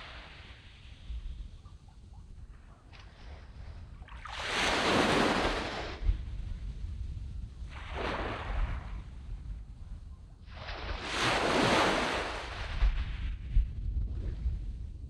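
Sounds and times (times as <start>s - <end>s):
wind rumbling on microphone: 0.0s - 15.0s
sea waves washing up a beach: 2.9s - 6.3s, 7.7s - 9.2s, 10.4s - 13.5s.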